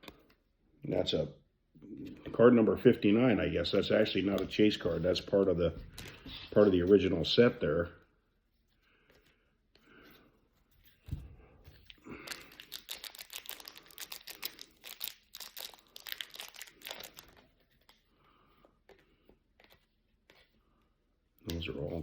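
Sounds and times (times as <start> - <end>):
wrapper tearing and crinkling: 12.0 - 17.5.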